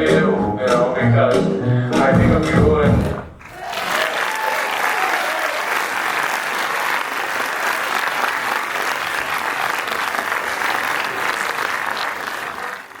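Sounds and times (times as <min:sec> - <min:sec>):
audience clapping: 0:03.0 - 0:13.0.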